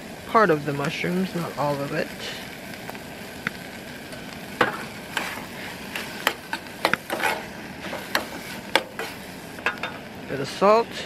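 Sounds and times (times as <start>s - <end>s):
food sizzling in oil: 0.0s - 11.0s
utensil scraping a pan: 4.1s - 10.1s.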